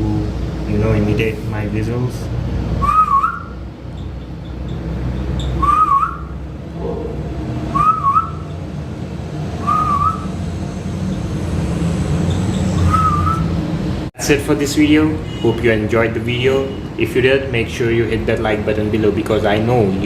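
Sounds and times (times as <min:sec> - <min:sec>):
cockatiel whistling: 0:02.8 - 0:03.6, 0:05.4 - 0:06.3, 0:07.7 - 0:08.5, 0:09.6 - 0:10.3, 0:12.3 - 0:13.5.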